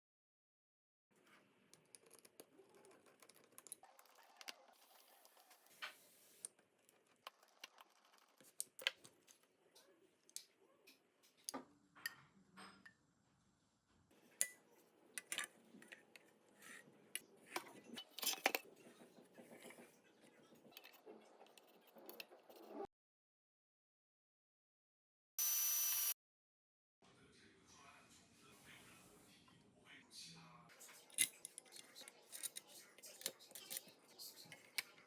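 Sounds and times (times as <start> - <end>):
small metal parts clicking: 31.0 - 34.8.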